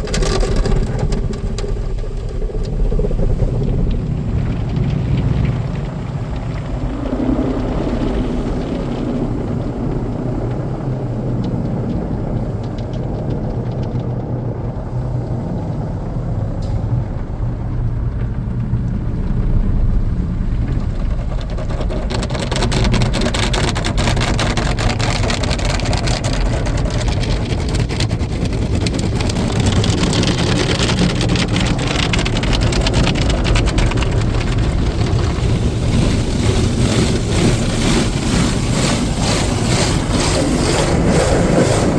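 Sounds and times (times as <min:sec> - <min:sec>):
machine hum: 0:27.0 - 0:41.9.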